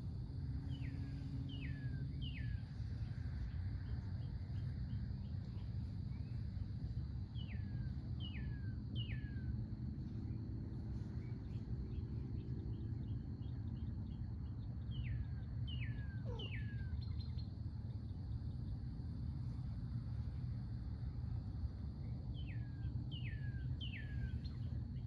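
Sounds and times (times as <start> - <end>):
low outdoor rumble: 0.0 - 25.0
songbird whistling: 15.0 - 17.4.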